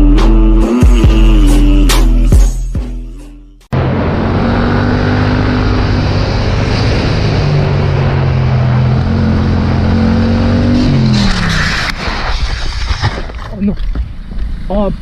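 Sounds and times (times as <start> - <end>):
wind and road noise: 3.8 - 15.0.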